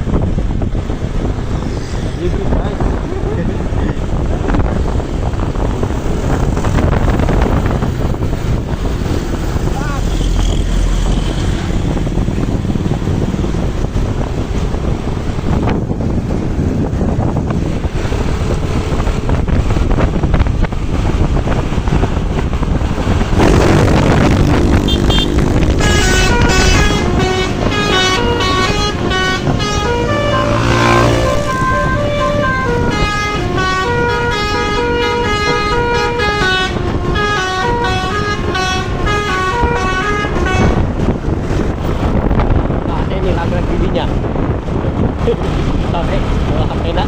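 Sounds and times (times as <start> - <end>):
road and wind noise: 0.0 - 47.0
musical air horn tune: 24.8 - 40.8.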